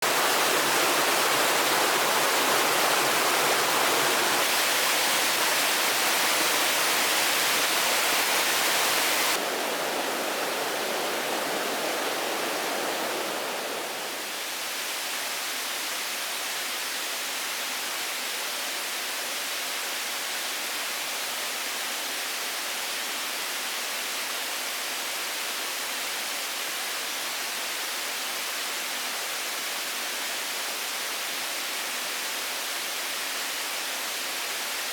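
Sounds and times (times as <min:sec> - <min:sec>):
steady rushing noise: 0:09.1 - 0:14.3.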